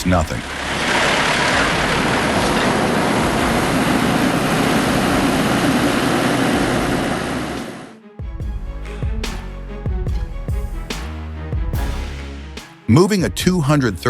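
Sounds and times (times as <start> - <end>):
loud engine noise with rushing hiss: 0.0 - 7.9.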